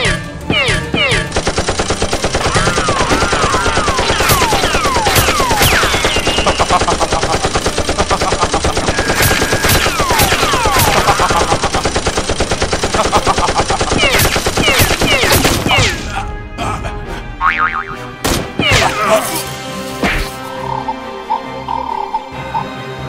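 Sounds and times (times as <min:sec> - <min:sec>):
rapid automatic gunfire: 0:01.3 - 0:15.7
falling ricochet whistles: 0:05.5 - 0:06.6.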